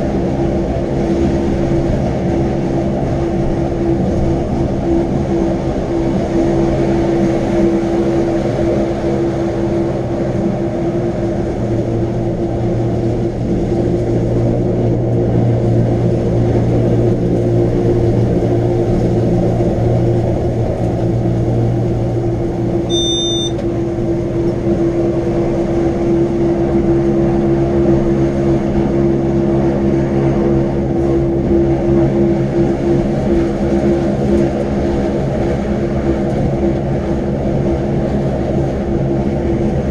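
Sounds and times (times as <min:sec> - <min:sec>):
brief high beep: 0:22.9 - 0:23.6.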